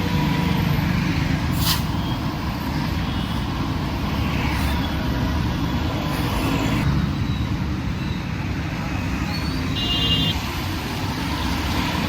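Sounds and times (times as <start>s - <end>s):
road traffic rumble: 0.0s - 12.0s
short sharp hiss: 1.5s - 2.0s.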